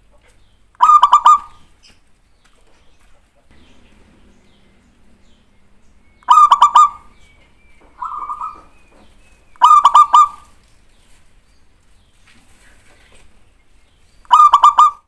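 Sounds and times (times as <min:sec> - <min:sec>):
dove cooing: 0:00.8 - 0:01.7, 0:03.5 - 0:10.8, 0:14.3 - 0:15.0.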